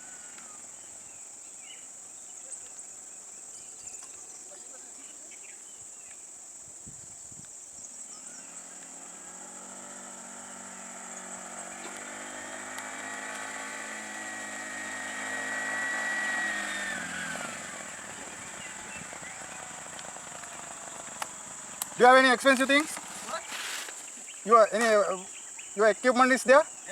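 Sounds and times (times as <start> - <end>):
vehicle engine passing by: 8.0 - 24.2.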